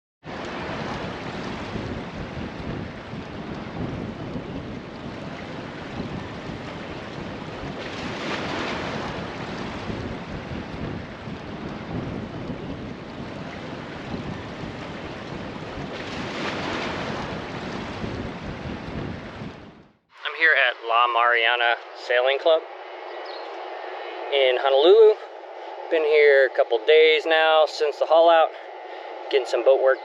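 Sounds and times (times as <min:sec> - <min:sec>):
wind buffeting microphone: 0:00.2 - 0:20.0, 0:20.8 - 0:30.0
waves washing: 0:00.2 - 0:30.0
water surging: 0:00.3 - 0:19.5.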